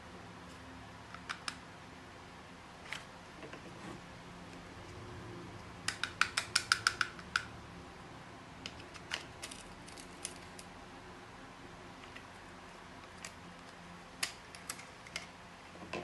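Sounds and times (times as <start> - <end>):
small hard objects clicking: 5.9 - 7.5.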